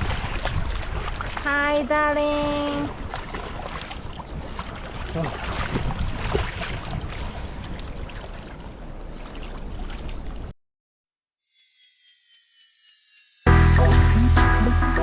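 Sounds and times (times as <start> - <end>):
wind on microphone: 0.0 - 1.4, 2.3 - 8.2
water splashing around boat: 0.0 - 10.5.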